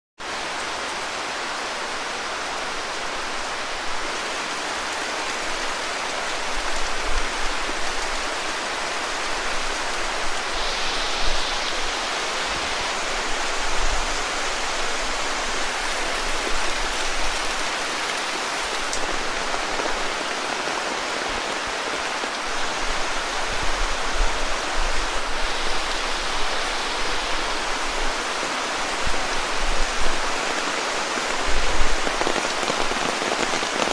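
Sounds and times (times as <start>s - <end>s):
heavy rain pouring: 0.2s - 33.9s.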